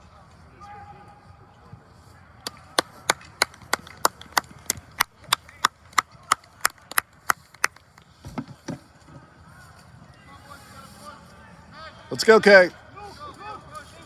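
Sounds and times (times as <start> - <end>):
sharp claps: 2.4 - 8.1.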